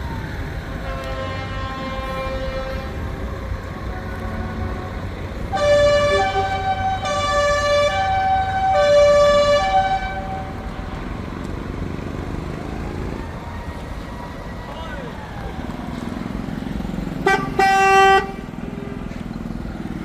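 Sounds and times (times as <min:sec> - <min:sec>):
truck engines rumbling: 0:00.0 - 0:20.0
truck air horns: 0:00.8 - 0:11.1, 0:17.2 - 0:19.3.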